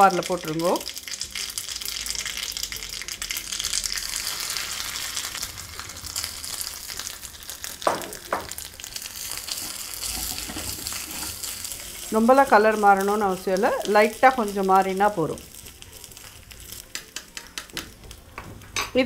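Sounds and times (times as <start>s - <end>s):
coconut frying in hot oil: 0.0s - 19.0s
spoon scraping pan: 9.4s - 13.4s.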